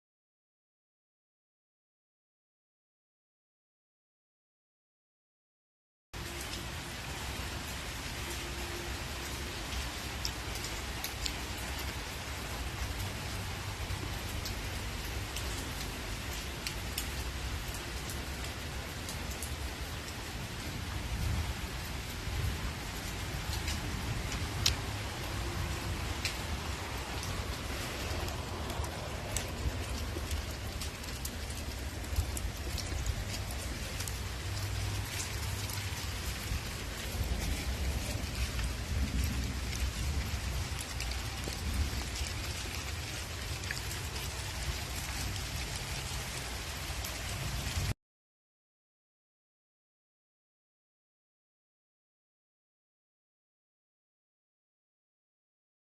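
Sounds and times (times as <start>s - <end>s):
steady rain hiss: 6.2s - 48.0s
raindrop ticks: 8.3s - 20.6s, 22.8s - 47.9s.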